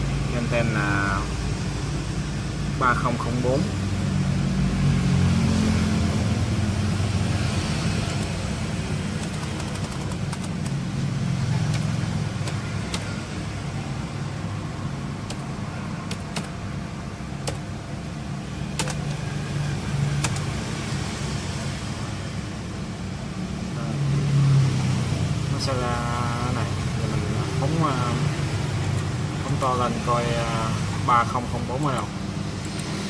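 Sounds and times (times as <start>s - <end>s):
road traffic rumble: 0.0s - 33.0s
sharp clicks: 9.2s - 10.8s, 17.4s - 17.6s, 18.8s - 19.2s, 20.2s - 20.5s, 28.8s - 29.7s, 31.8s - 33.0s.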